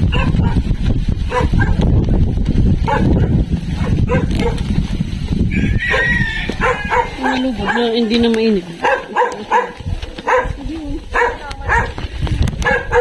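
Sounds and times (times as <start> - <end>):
dogs barking: 0.0 - 1.8, 2.8 - 4.7, 5.8 - 12.0, 12.6 - 13.0
heavy low rumble: 0.0 - 8.8.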